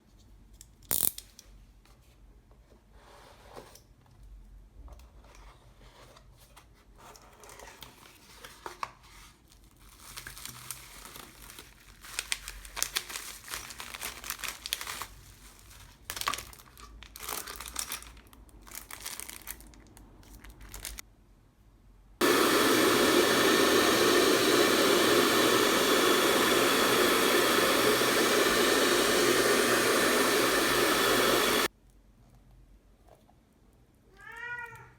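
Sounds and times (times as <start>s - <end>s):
electric blower running: 22.2s - 31.7s.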